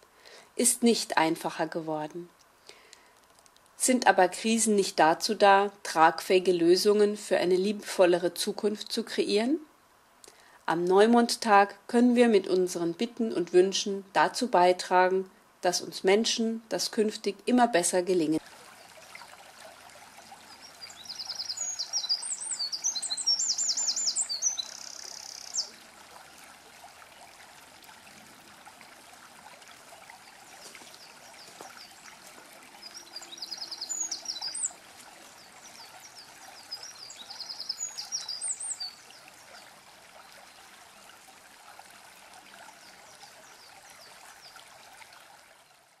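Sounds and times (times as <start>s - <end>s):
small stream rushing: 17.8s - 46.0s
songbird trilling: 20.5s - 25.8s, 32.8s - 34.8s, 35.4s - 39.1s.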